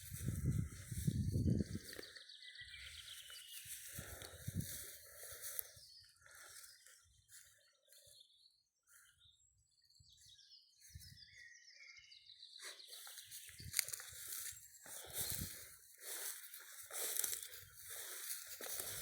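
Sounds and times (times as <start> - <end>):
faint bird chirps: 0.3 - 19.0.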